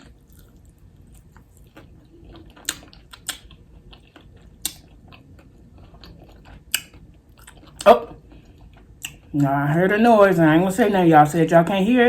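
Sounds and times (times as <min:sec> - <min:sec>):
crunching bites and chewing: 0:00.0 - 0:09.5.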